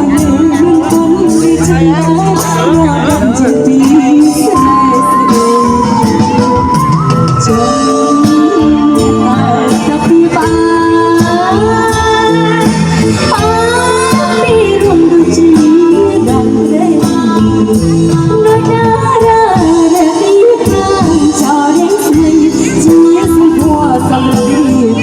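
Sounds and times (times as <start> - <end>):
band accompaniment with percussive beat: 0.0 - 25.0.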